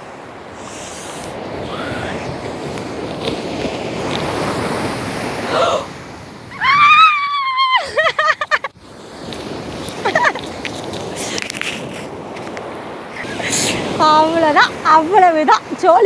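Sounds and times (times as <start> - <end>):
sea surf rushing onto beach: 0.0 - 16.0
loud high-pitched cries: 6.5 - 7.9.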